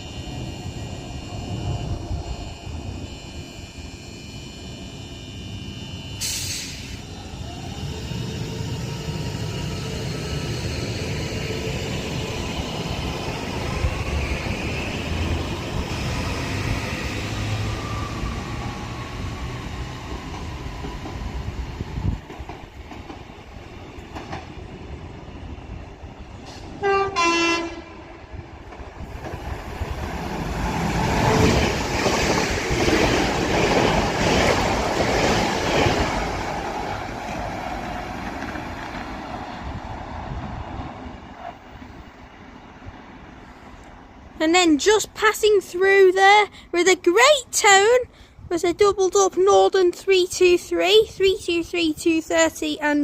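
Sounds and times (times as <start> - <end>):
two-tone train horn: 0.0 - 7.0, 26.8 - 28.2
electric train motors whining: 0.0 - 39.8
train wheels on rails: 5.5 - 42.2.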